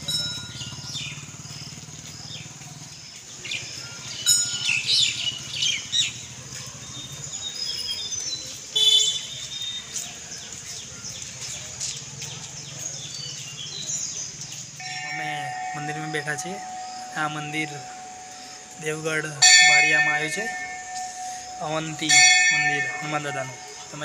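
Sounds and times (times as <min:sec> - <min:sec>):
birds chirping and calling: 0:13.2 - 0:24.0.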